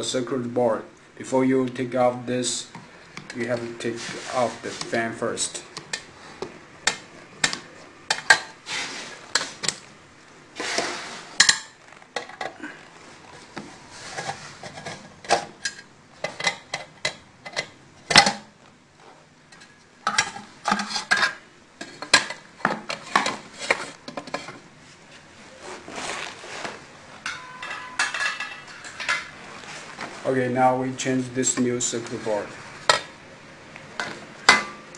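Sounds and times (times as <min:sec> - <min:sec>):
metallic clinks of tools and parts: 0:27.3 - 0:28.9.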